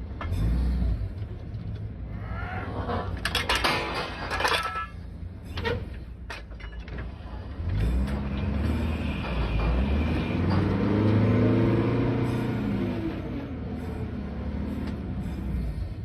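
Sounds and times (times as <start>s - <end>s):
sharp metal clanks: 3.2s - 7.2s
truck engine revving: 7.1s - 16.0s.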